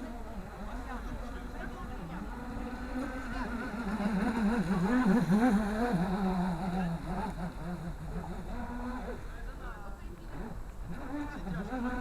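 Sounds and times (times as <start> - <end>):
model boat motor running: 0.0 - 12.0.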